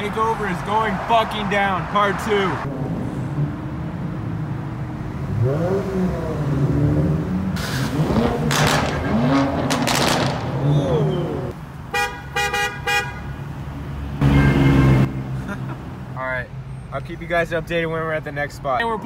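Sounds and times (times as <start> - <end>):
car engines revving: 0.0 - 12.0, 12.6 - 19.0
car horn honking: 11.9 - 13.4, 14.2 - 15.3.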